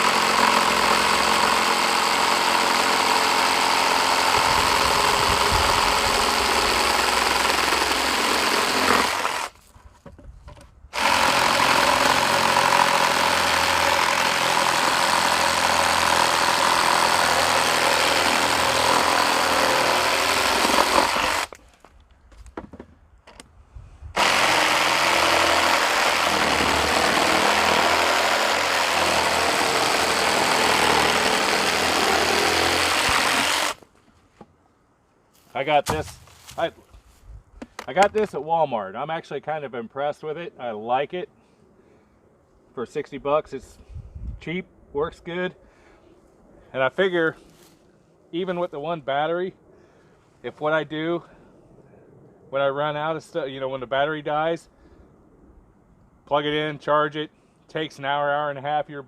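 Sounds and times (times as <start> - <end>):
reciprocating saw cutting wood: 0.0 - 9.6, 11.0 - 21.6, 24.2 - 33.8.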